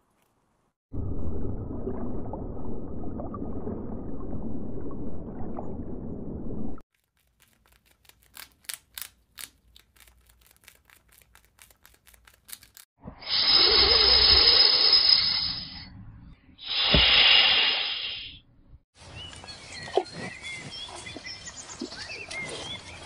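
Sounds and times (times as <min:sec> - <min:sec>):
squirrel clicking: 0:06.9 - 0:12.8
snake hissing: 0:13.2 - 0:15.8, 0:16.6 - 0:18.4.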